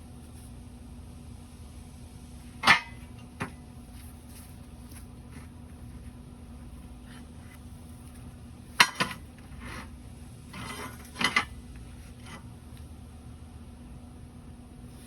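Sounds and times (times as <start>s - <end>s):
low steady hum: 0.0s - 15.0s
metallic clanks: 2.6s - 3.1s
metal scrape: 8.8s - 11.5s.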